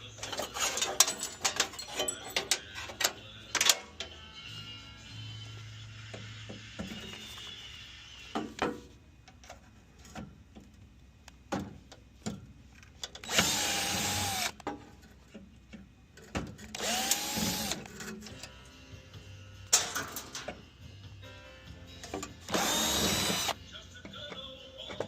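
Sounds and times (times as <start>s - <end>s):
metal parts knocking and clicking: 0.2s - 3.8s
power tool motor spinning: 13.2s - 14.6s, 16.8s - 17.9s, 22.5s - 23.6s.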